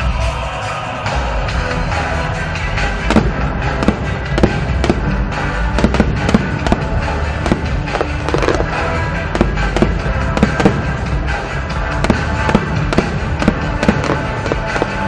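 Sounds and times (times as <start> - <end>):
loud music: 0.0 - 15.0
fireworks bursting: 3.0 - 15.0.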